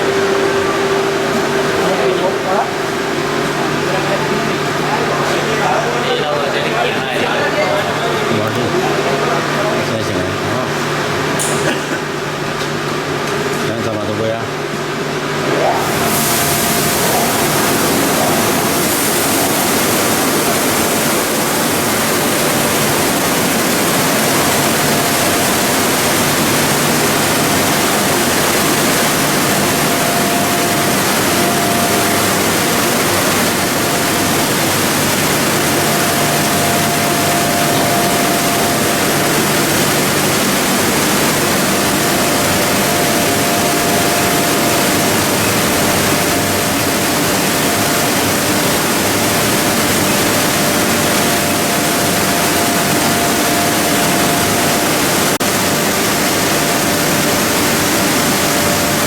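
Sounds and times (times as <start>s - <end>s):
faint high whine: 0.0s - 6.9s
machinery rushing noise: 0.0s - 9.8s, 15.1s - 59.0s.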